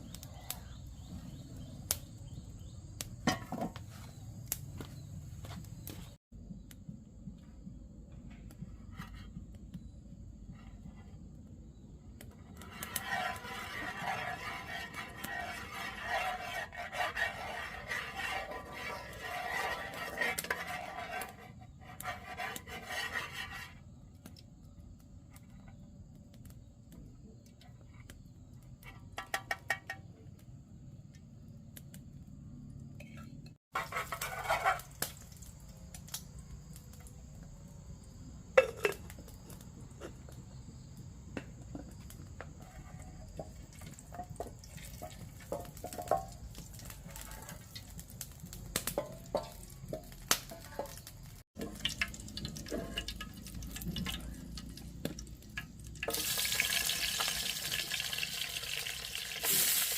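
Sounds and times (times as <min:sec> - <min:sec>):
pots and utensils clinking: 0:03.2 - 0:03.8, 0:38.6 - 0:39.1, 0:43.9 - 0:48.0, 0:48.8 - 0:59.9.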